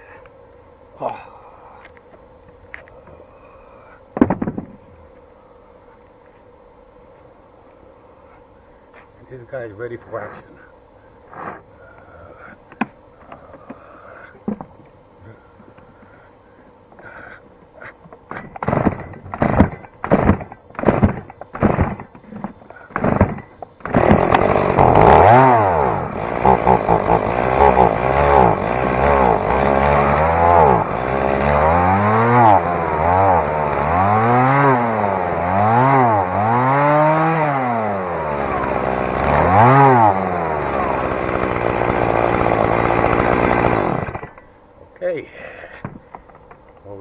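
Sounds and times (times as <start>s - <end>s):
chainsaw starter cord pulls: 18.3s - 44.5s
chainsaw engine revving: 18.5s - 44.4s.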